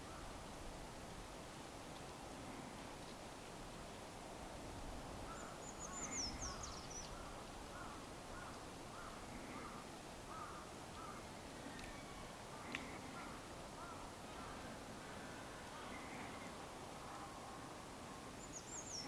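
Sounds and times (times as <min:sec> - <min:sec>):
faint caw-like bird calls: 0:05.3 - 0:17.6.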